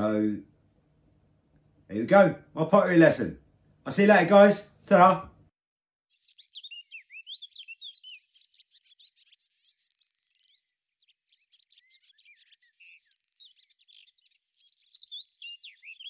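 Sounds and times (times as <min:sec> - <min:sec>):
birds chirping and trilling: 0:06.1 - 0:16.0.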